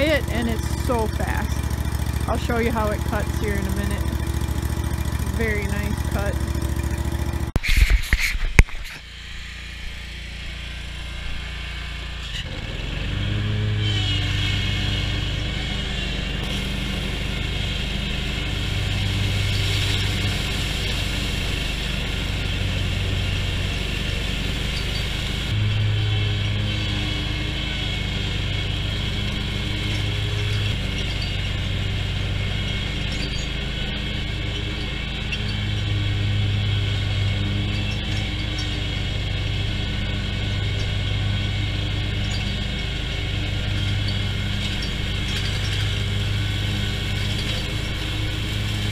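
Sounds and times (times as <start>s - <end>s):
mower engine running: 0.0s - 48.9s.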